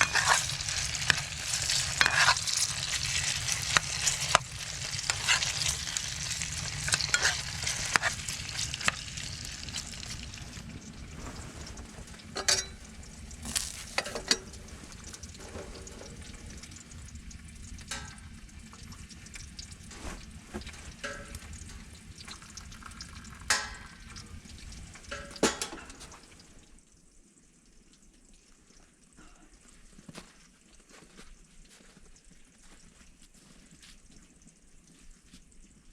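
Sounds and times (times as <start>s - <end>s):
food sizzling in a pan: 0.0s - 26.7s.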